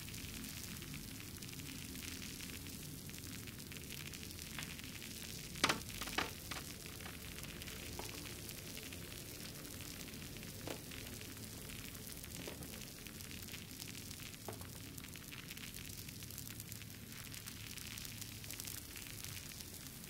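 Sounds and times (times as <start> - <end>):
low rumble and hiss: 0.0 - 20.0
wood fire crackling: 0.0 - 20.0
loud fire pops: 3.6 - 11.5.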